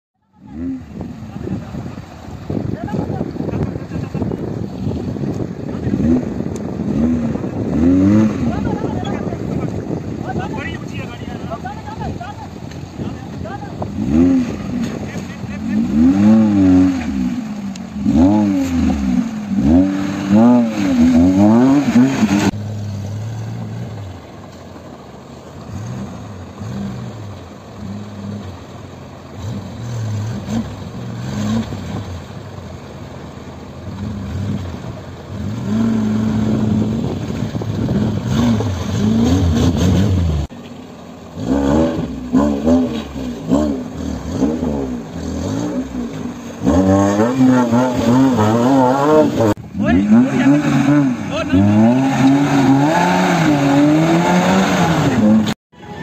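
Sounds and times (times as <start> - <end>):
off-road engines revving: 0.2 - 56.0.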